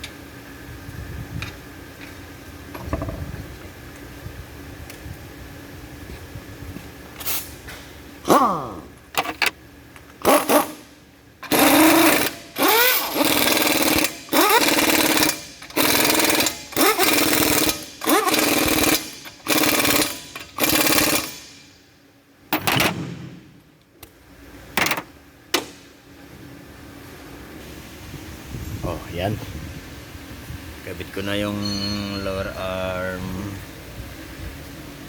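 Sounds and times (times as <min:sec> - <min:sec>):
impact wrench hammering: 0:10.3 - 0:21.7.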